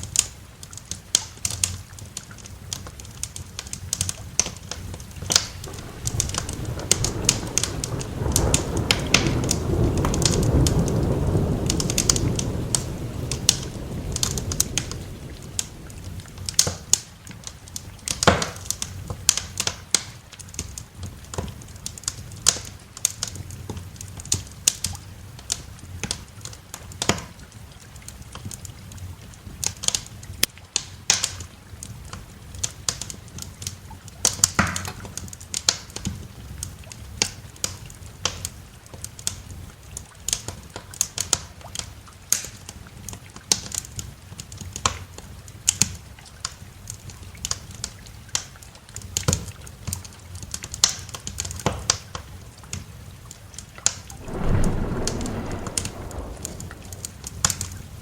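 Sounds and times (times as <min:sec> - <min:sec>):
wood fire crackling and popping: 0:02.2 - 0:17.0, 0:54.1 - 0:57.9
low thunder roll: 0:05.4 - 0:16.6, 0:54.1 - 0:58.0.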